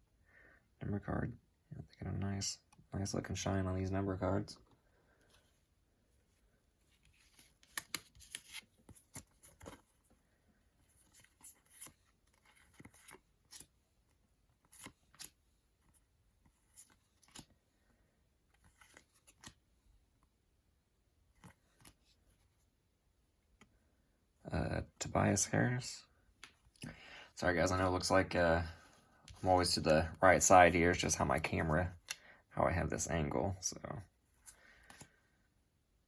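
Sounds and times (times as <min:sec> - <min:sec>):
cards and packets rustling: 0:06.2 - 0:19.7.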